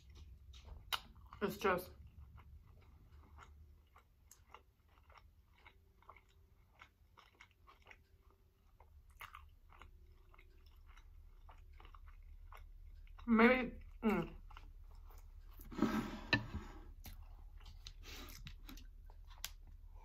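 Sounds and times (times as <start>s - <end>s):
chewing crunchy food: 0.0s - 20.0s.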